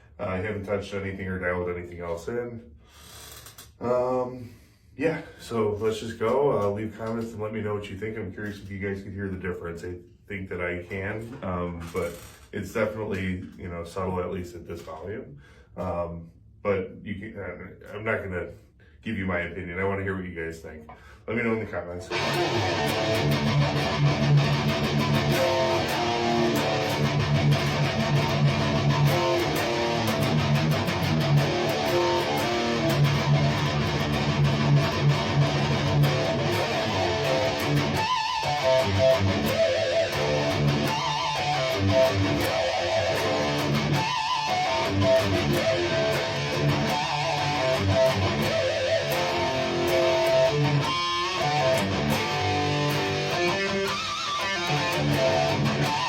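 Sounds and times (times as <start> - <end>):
electric guitar riffing: 22.0 - 56.0.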